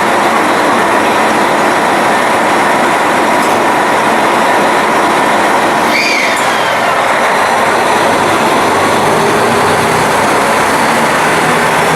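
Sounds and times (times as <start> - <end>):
train wheels on track: 0.0 - 11.9.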